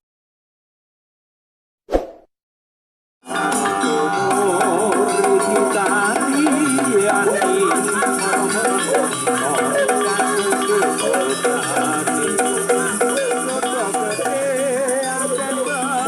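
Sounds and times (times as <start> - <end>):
chiming metallophone tones: 3.3 - 16.0
steady percussion beat: 3.3 - 16.0
wavering melody line: 3.3 - 16.0.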